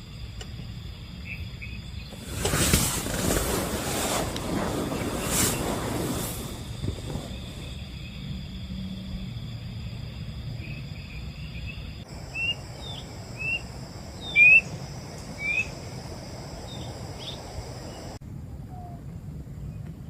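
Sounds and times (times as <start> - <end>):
insects droning: 0.0 - 19.9
bird chirping: 10.6 - 18.2.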